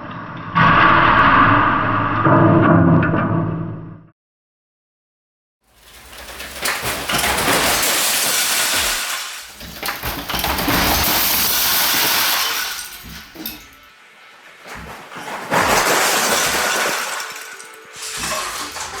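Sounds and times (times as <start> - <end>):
plastic bricks crashing and clattering: 5.7 - 13.9, 14.5 - 19.0.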